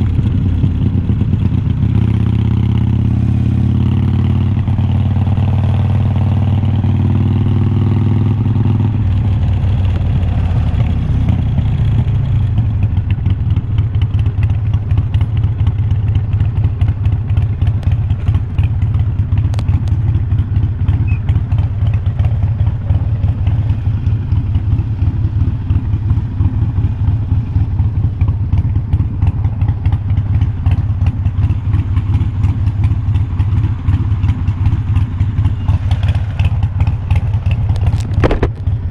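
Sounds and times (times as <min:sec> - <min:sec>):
motorcycle exhaust idling: 0:00.0 - 0:38.9.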